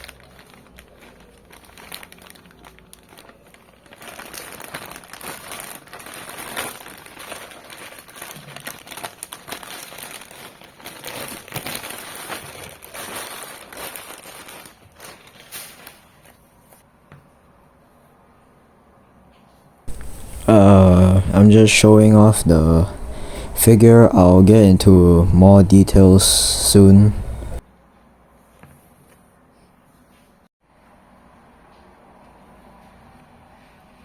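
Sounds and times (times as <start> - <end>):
plastic packaging crinkling: 0.0 - 16.6.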